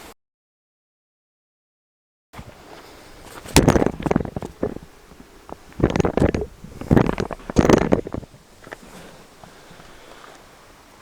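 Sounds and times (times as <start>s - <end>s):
close rustling and rubbing: 2.4s - 10.6s.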